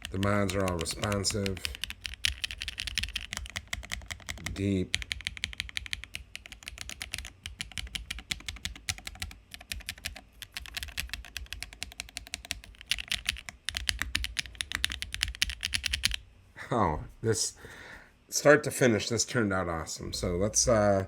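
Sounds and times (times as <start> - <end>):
clacky mechanical keyboard typing: 0.0 - 16.2.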